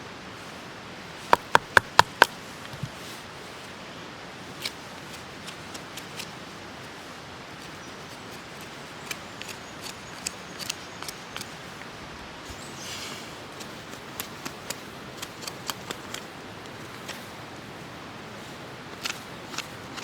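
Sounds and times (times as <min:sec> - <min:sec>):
steady hiss: 0:00.0 - 0:20.0
knife scraping bark: 0:04.4 - 0:07.0, 0:07.6 - 0:11.9, 0:12.5 - 0:17.3, 0:18.3 - 0:20.0.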